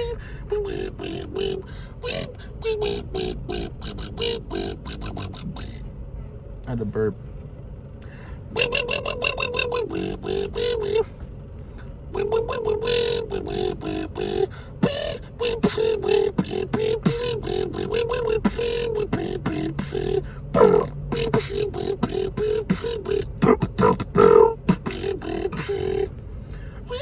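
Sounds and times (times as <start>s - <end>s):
hummed melody: 0.0s - 5.8s, 8.5s - 11.2s, 12.1s - 26.2s
person beatboxing: 0.0s - 5.8s, 8.5s - 11.1s, 12.2s - 26.1s.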